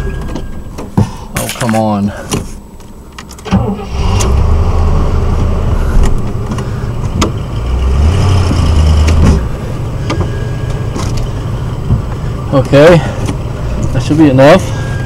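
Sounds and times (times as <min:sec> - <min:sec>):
car engine revving: 0:03.4 - 0:15.0.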